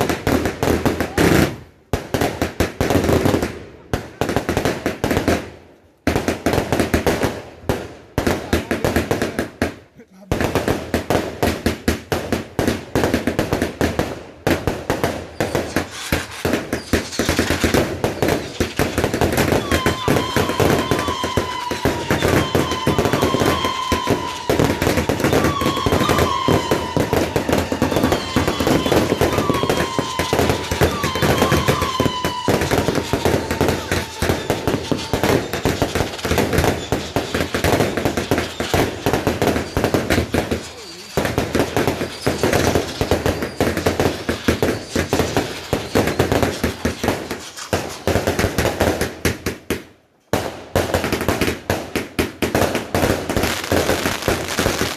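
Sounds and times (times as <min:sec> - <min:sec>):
fireworks crackling and banging: 0:00.0 - 0:54.9
whistling firework shrieking: 0:15.1 - 0:48.2.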